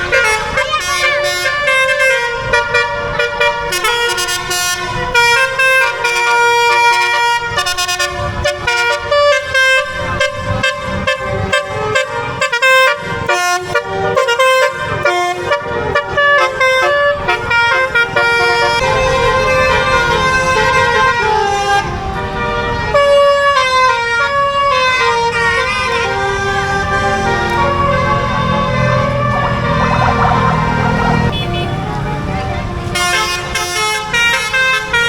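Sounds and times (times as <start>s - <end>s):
bus melody horn playing a tune: 0.0s - 35.0s.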